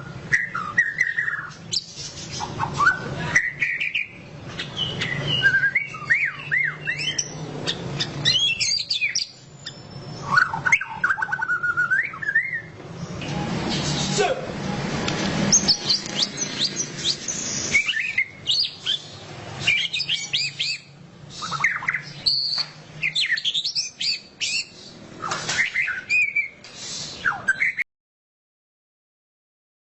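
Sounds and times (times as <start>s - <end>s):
bird singing whistled notes: 0.0s - 13.2s, 15.5s - 27.8s.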